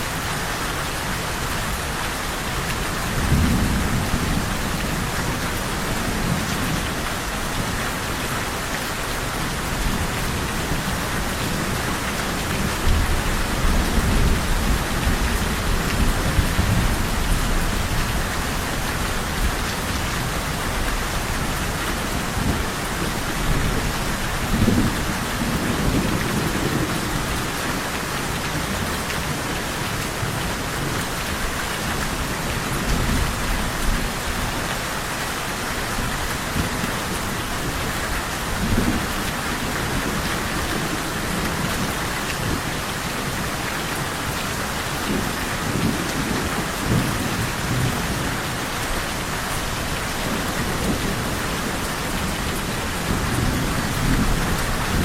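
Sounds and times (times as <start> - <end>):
rain pattering: 0.0 - 55.0
thunder rumbling: 9.2 - 27.4, 44.9 - 55.0.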